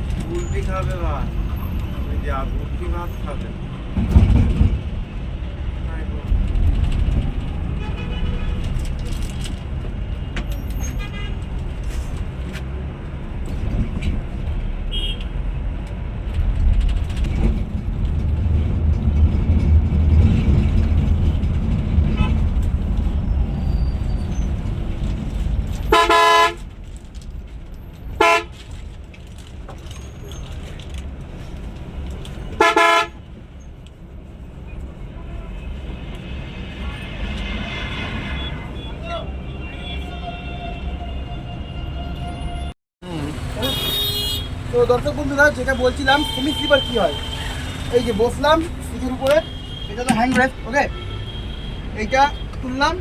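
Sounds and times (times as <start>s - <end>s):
heavy vehicle engine rumbling: 0.0s - 53.0s
vehicle horn honking: 7.8s - 8.7s, 14.9s - 15.3s, 25.9s - 26.6s, 28.2s - 28.5s, 32.6s - 33.2s, 37.4s - 42.7s, 43.6s - 44.6s, 45.8s - 48.3s, 49.3s - 52.6s.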